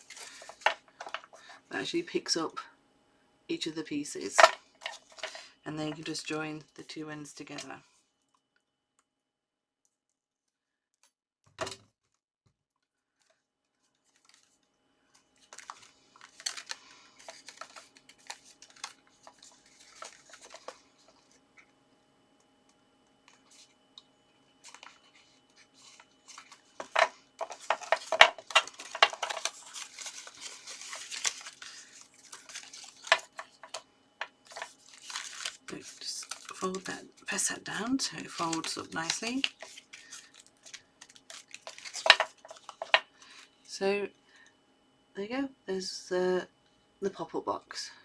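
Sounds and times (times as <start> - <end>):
card stock rustling and crinkling: 0.0 - 1.5, 4.3 - 6.4, 13.1 - 21.8, 23.2 - 23.8, 24.4 - 43.5.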